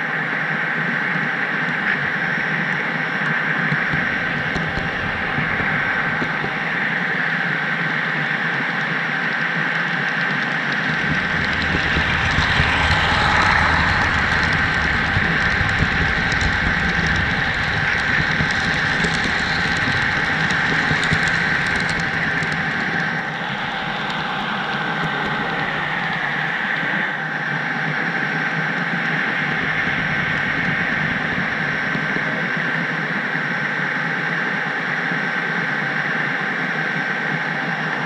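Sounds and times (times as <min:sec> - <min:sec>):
low rumble: 0:03.7 - 0:07.4, 0:10.5 - 0:33.6
thin high whine: 0:10.5 - 0:27.2
small clicks: 0:10.7 - 0:23.2.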